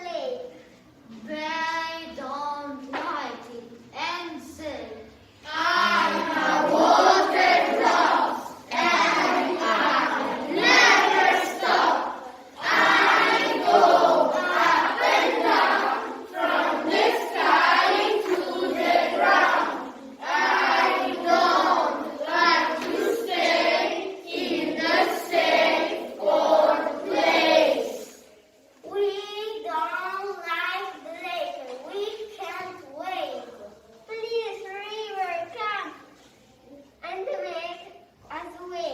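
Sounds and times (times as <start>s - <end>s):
children's choir singing: 5.4s - 28.5s.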